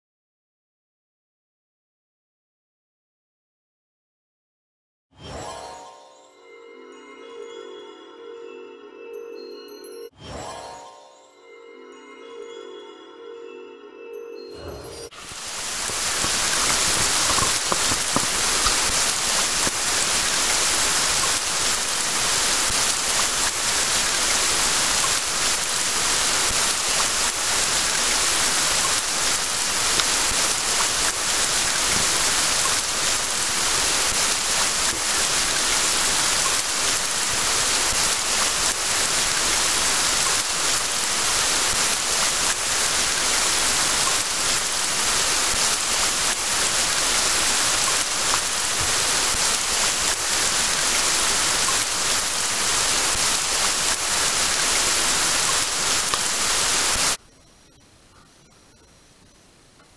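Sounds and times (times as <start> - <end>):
steady rain hiss: 15.1 - 58.1.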